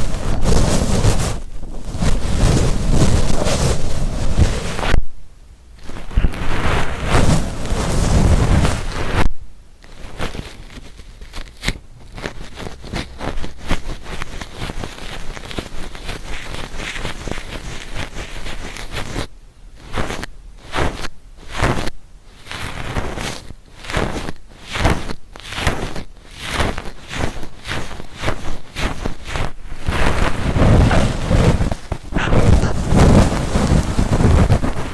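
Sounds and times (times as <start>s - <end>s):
ear-cleaning tool scraping: 29.7s - 34.9s.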